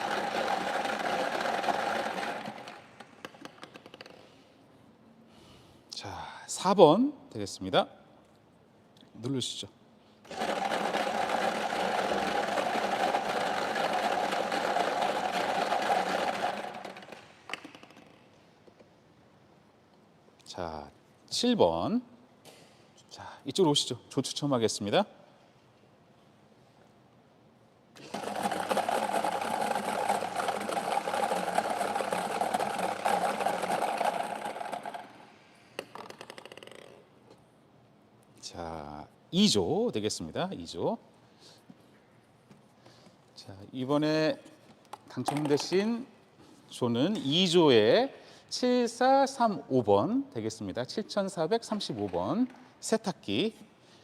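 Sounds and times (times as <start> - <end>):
lottery balls rattling in machine: 0.0 - 4.0, 10.3 - 18.1, 28.0 - 37.0, 45.1 - 46.0
ball dropping click: 16.9 - 18.2, 35.8 - 37.0, 44.9 - 45.8.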